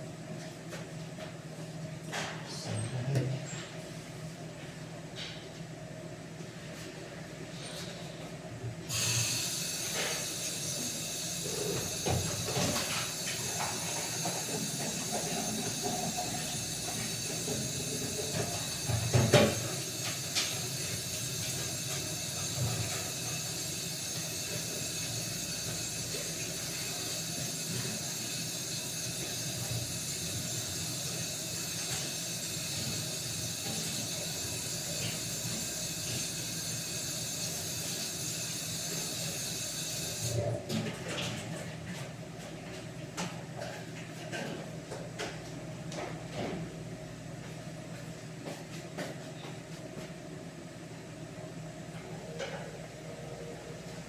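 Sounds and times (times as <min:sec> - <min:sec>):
cooking hiss: 0:08.9 - 0:40.4.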